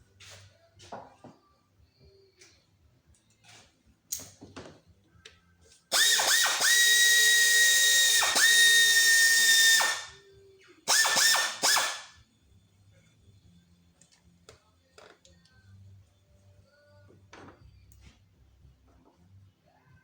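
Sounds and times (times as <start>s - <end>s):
power drill whining: 5.9s - 10.2s, 10.9s - 12.1s.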